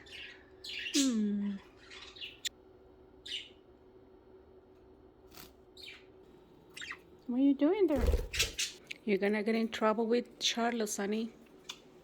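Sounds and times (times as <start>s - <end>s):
budgerigars chirping: 0.0s - 2.5s, 3.2s - 3.6s, 6.7s - 7.0s.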